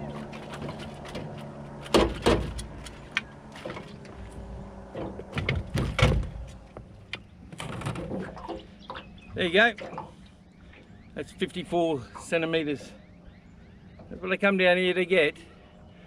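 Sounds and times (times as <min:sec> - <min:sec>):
knocks and thumps in boat: 0:00.0 - 0:10.8
steady low hum: 0:00.0 - 0:16.0.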